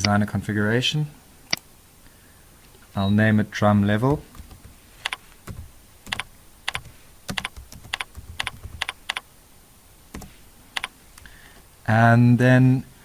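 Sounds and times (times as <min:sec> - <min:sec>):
keyboard typing: 0:04.0 - 0:09.3, 0:10.1 - 0:11.0.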